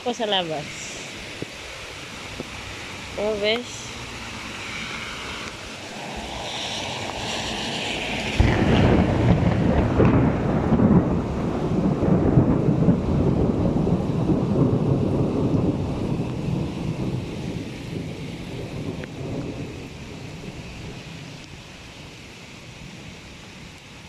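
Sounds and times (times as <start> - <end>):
heavy rain: 0.0 - 24.0
thunder clap and rumble: 5.9 - 21.5.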